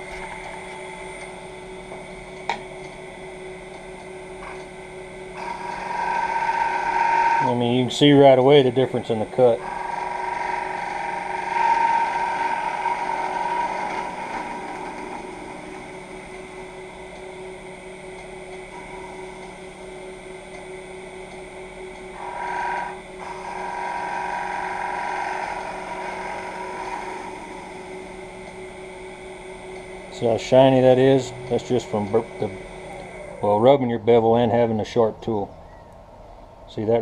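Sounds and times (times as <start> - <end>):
wood lathe humming: 0.0 - 34.8
gouge cutting spinning wood: 5.4 - 17.2, 18.0 - 20.2, 21.9 - 33.6.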